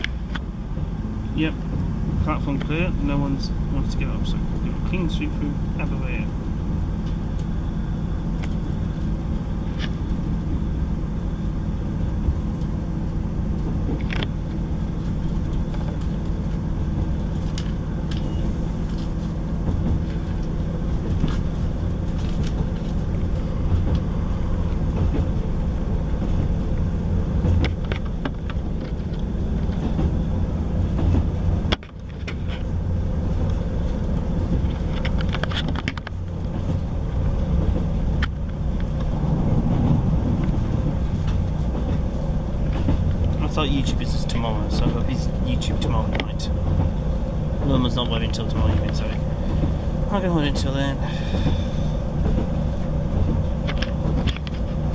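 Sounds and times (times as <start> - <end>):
train rumbling on rails: 0.0 - 54.9
light clicks and rattles: 26.2 - 51.6.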